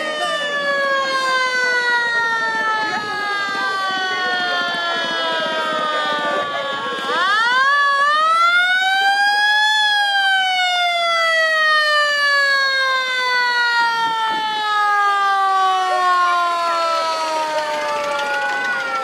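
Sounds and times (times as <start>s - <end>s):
siren wailing: 0.0s - 19.0s.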